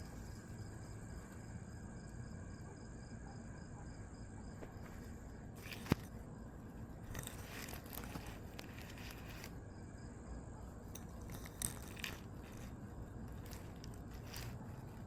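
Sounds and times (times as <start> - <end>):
high insect trill: 0.0 - 15.0
rustling and crackling: 4.6 - 9.6, 10.8 - 15.0.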